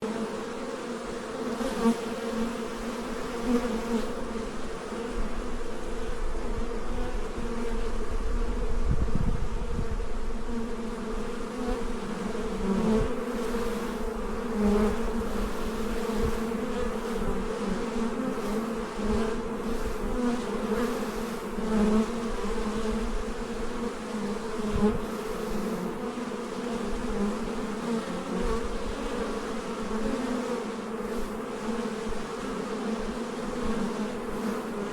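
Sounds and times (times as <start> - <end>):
bees buzzing: 0.0 - 34.9.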